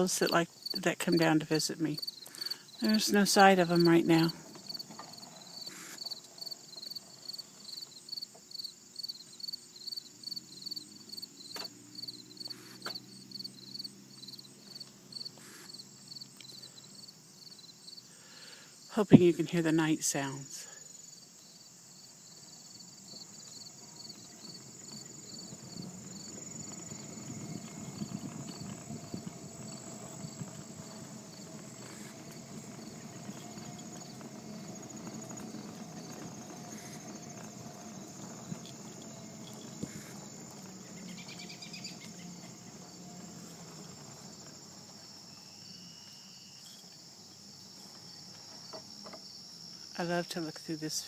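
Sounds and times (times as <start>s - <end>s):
crickets and insects chirping: 0.0s - 51.0s.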